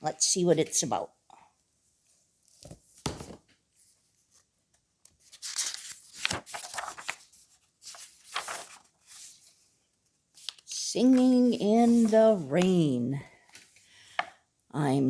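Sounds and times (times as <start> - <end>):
book pages rustling: 2.4 - 14.3.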